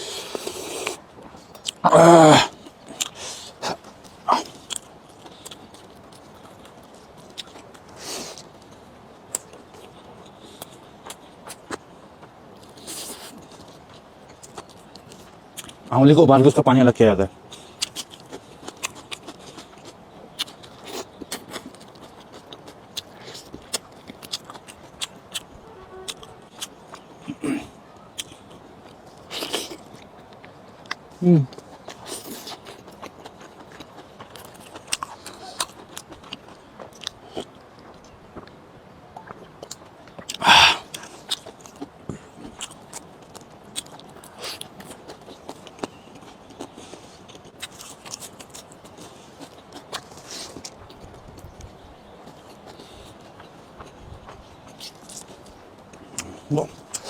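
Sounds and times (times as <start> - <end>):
mouth eating sounds: 0.0 - 1.0, 1.6 - 4.8, 17.8 - 28.6, 39.2 - 43.1, 55.9 - 57.0
person chewing: 0.0 - 11.8, 17.5 - 38.6, 39.2 - 51.5, 52.3 - 57.0.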